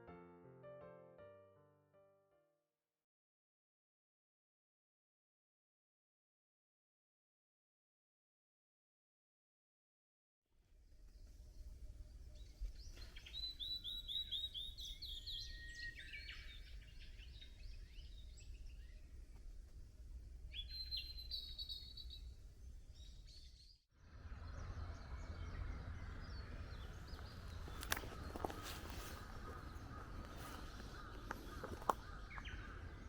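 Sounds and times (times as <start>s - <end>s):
hissy outdoor background: 10.6s - 33.0s
songbirds singing: 11.0s - 19.6s, 20.2s - 33.0s.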